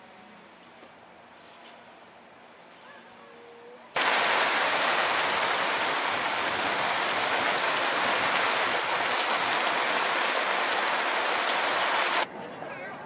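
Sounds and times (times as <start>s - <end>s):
heavy rain pouring: 4.0s - 12.3s
raindrops splashing close by: 4.0s - 12.3s.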